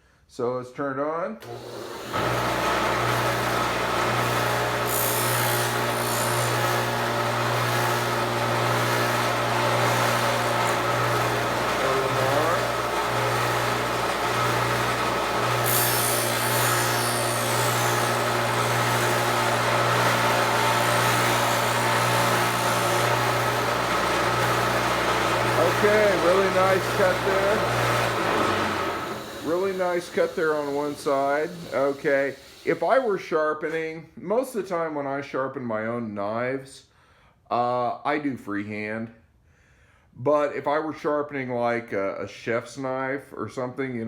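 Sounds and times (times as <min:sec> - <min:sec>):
motor hum: 0:01.4 - 0:33.0
grinding wheel on knife: 0:02.2 - 0:33.1.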